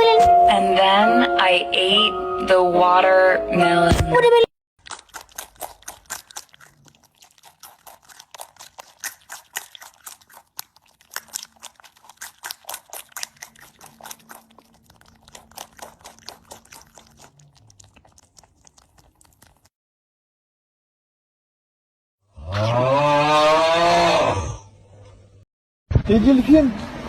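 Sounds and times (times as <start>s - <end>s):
chewing crunchy food: 4.8s - 19.7s.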